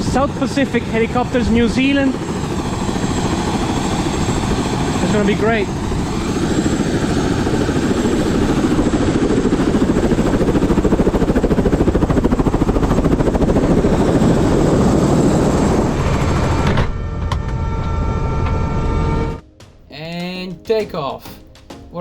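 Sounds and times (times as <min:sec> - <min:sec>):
turbine noise: 0:00.0 - 0:19.4
helicopter rotor beating: 0:00.0 - 0:19.5
thin whining tones: 0:15.2 - 0:19.4.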